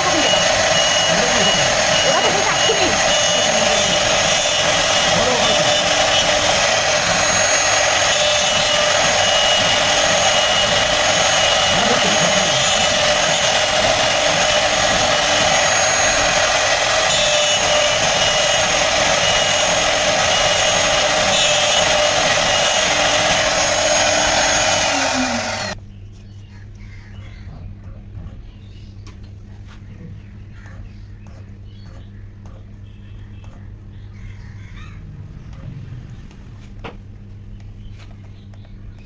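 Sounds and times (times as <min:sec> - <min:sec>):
router spindle whining: 0:00.0 - 0:25.8.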